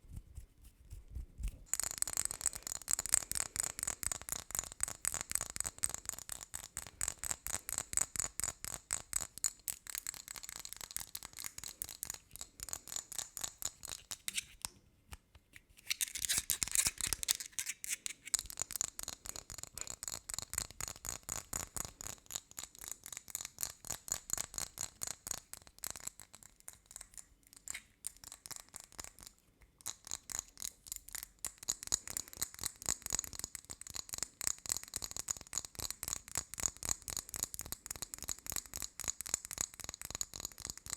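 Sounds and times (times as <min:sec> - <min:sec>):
tapping on small objects: 0:01.7 - 0:14.5
scratching on small objects: 0:15.5 - 0:33.2.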